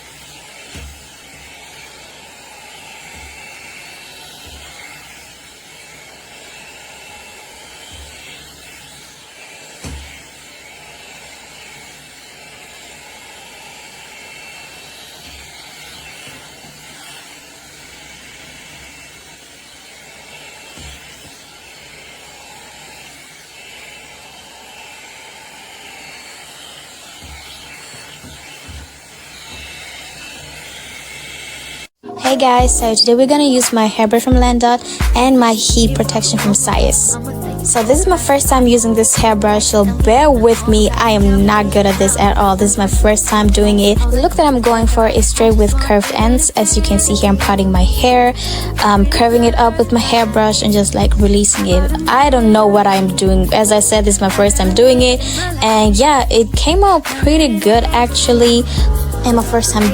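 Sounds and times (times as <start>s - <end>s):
hair dryer brush blowing: 0.0s - 59.9s
low handling thumps: 34.3s - 52.6s, 53.3s - 59.9s.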